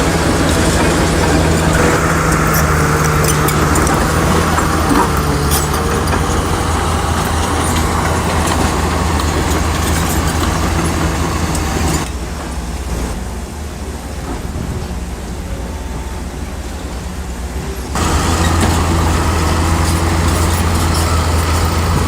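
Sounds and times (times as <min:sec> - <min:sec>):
bulldozer diesel engine running: 0:00.0 - 0:14.2, 0:15.0 - 0:22.0
machine knocks and clanks: 0:00.2 - 0:12.1, 0:18.0 - 0:22.0.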